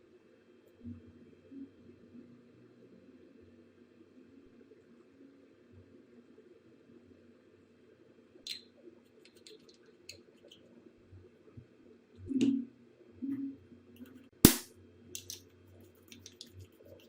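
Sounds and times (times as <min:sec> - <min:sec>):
light clicks and taps: 0:08.5 - 0:10.6, 0:15.2 - 0:17.0
sharp snap: 0:14.4 - 0:14.7.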